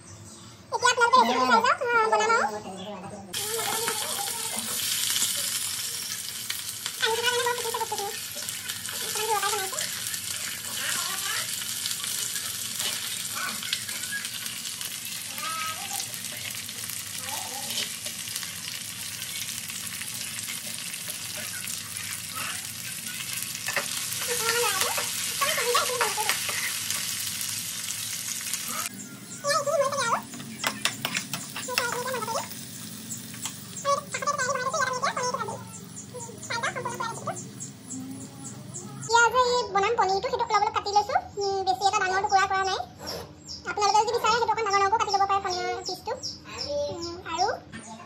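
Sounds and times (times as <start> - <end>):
vegetables sizzling in hot oil: 3.3 - 39.6.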